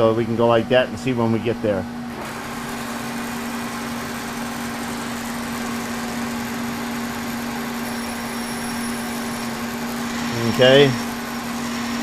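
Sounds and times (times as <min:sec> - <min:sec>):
milling machine humming: 0:00.0 - 0:12.0
mechanical noise: 0:02.0 - 0:12.0.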